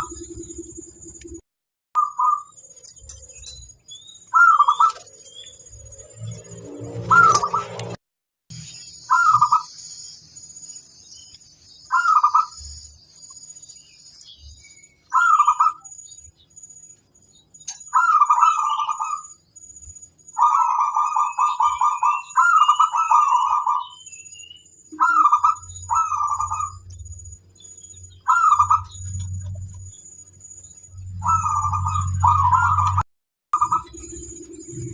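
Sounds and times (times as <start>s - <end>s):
small birds twittering: 0.0s - 1.4s, 2.0s - 7.9s, 8.5s - 34.9s
dove cooing: 20.4s - 24.0s, 31.2s - 33.0s.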